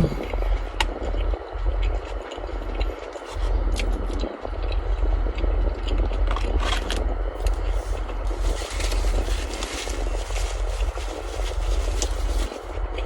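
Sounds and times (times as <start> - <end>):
chewing and crunching crispy food: 0.0 - 13.0
steady low rumble: 0.0 - 13.0.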